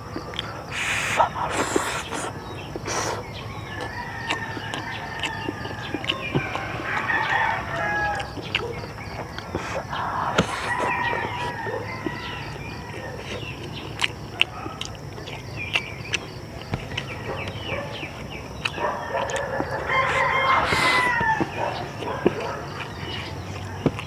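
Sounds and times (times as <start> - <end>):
rooster crowing: 3.2 - 13.7, 16.8 - 24.0.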